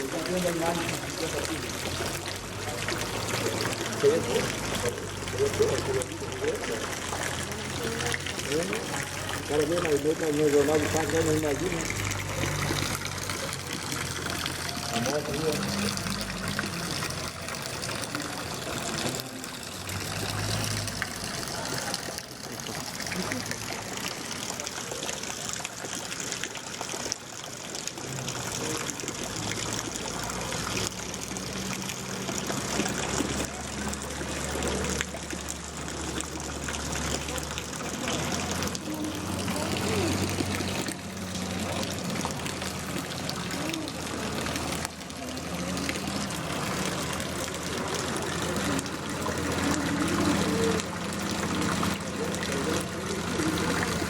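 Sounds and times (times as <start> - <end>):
water running on street: 0.0 - 54.0
heavy rain falling: 28.1 - 54.0.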